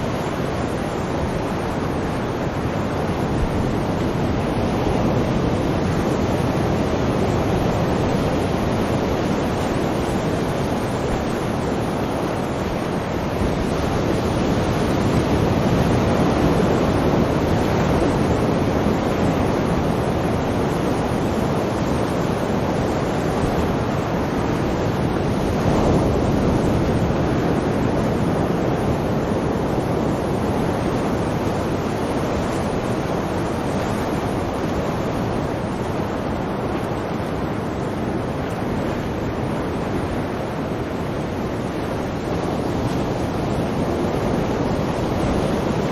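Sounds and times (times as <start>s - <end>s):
sea waves breaking on shore: 0.0s - 45.9s.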